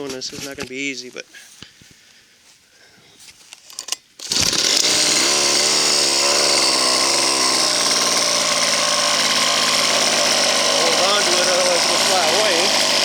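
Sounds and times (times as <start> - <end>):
clicks: 3.5 - 5.4
model helicopter engine running: 3.7 - 13.0.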